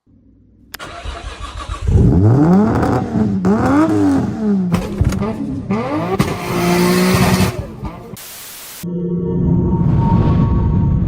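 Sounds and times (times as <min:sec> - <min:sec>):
car engine revving: 0:00.1 - 0:08.2.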